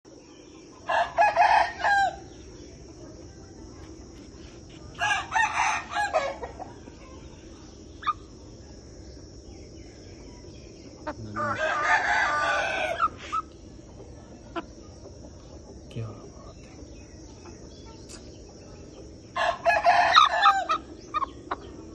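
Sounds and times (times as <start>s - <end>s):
high insect drone: 0.1s - 21.9s
rooster crowing: 0.8s - 2.2s, 5.0s - 6.6s, 11.2s - 13.2s, 19.4s - 20.9s.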